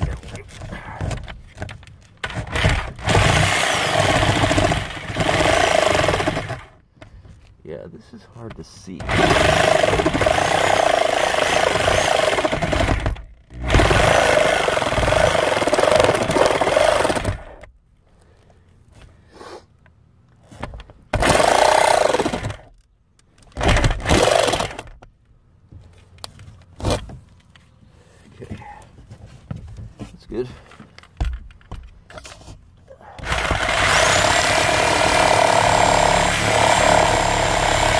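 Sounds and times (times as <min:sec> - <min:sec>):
power saw cutting roof deck: 0:02.2 - 0:07.2, 0:09.0 - 0:17.7, 0:21.1 - 0:22.7, 0:23.6 - 0:25.0, 0:33.2 - 0:37.9.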